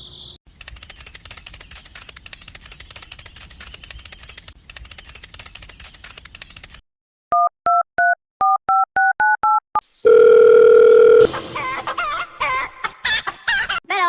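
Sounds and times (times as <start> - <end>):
rapid clicking: 0.5 - 6.8
telephone keypad dialing tones: 7.3 - 11.3
steady telephone tone: 10.1 - 11.3.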